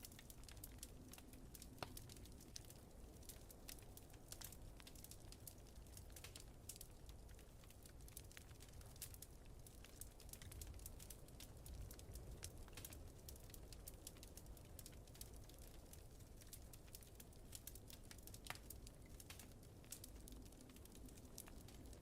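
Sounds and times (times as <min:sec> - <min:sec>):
fire low rumble: 0:00.0 - 0:22.0
wood fire crackling and popping: 0:00.0 - 0:22.0.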